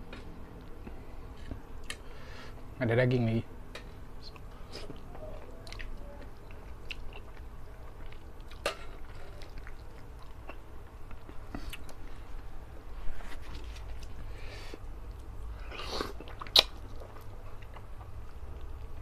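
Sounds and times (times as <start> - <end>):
person chewing wetly: 4.3 - 12.2, 13.5 - 19.0.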